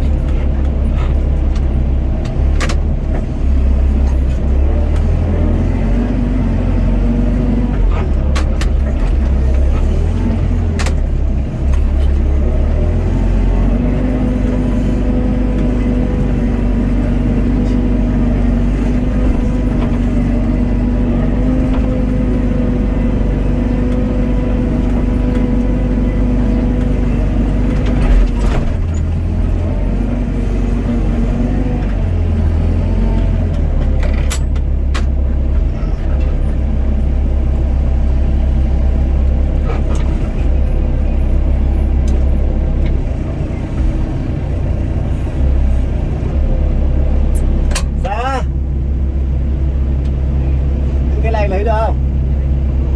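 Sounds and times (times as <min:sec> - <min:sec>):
excavator diesel engine running: 0:00.0 - 0:52.9
sharp clicks and knocks: 0:01.5 - 0:03.3, 0:08.0 - 0:09.7, 0:33.5 - 0:35.2.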